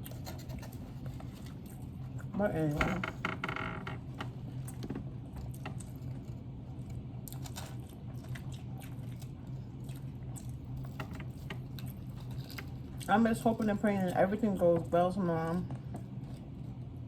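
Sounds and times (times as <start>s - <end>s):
people chewing food: 0.0s - 2.3s, 4.0s - 17.0s
steady low hum: 0.0s - 17.0s
small clicks and crunches: 2.9s - 13.1s.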